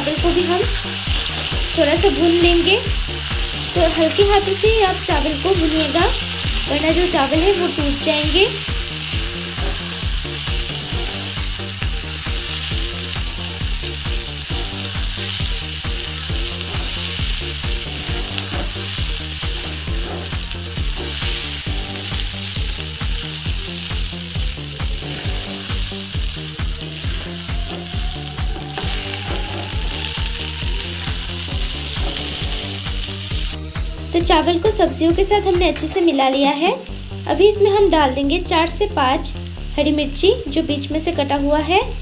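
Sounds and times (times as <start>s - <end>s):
low pulsing rhythm: 0.0s - 36.0s
rice and vegetables sizzling: 0.0s - 42.0s
metal spatula scraping: 9.0s - 11.3s, 14.5s - 22.2s, 24.8s - 26.1s, 26.8s - 33.6s
rising tone: 26.5s - 32.5s.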